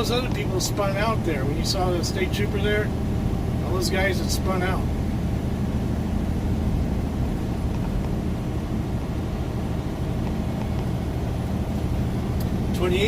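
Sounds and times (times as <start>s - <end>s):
diesel truck engine drone: 0.0s - 13.0s
tyres on snowy road: 0.0s - 13.0s.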